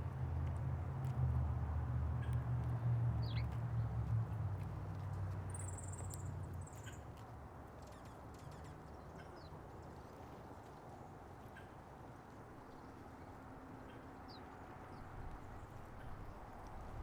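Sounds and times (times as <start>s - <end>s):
small birds chirping: 5.5s - 7.0s.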